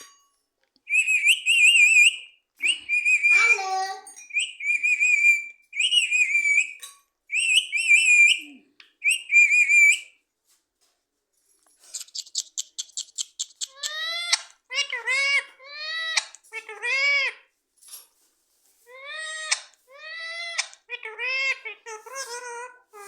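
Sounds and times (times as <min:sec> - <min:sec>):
parrot whistling: 0:00.9 - 0:03.6, 0:04.4 - 0:10.2.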